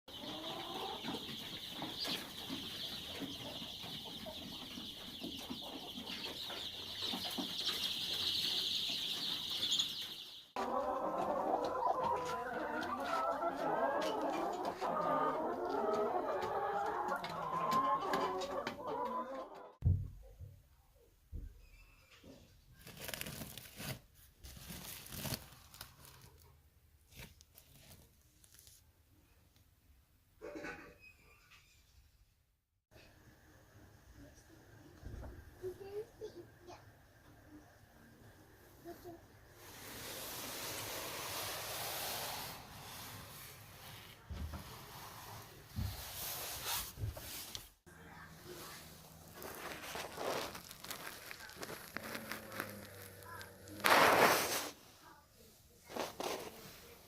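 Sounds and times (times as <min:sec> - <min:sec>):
high-pitched peeping: 0:00.1 - 0:10.5
chickens clucking: 0:00.1 - 0:19.8
rustling and crackling: 0:22.7 - 0:28.8, 0:39.6 - 0:57.0.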